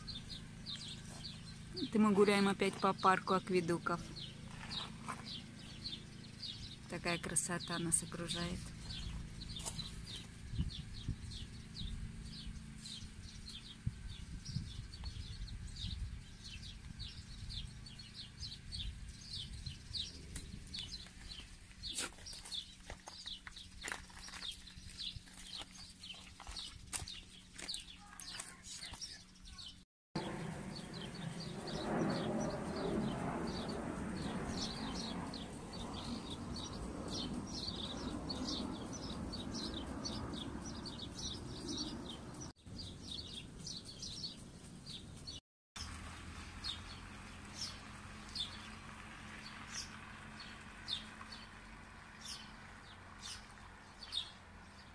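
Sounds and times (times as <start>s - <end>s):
small birds chirping: 0.0s - 54.9s
low background rumble: 30.2s - 45.4s.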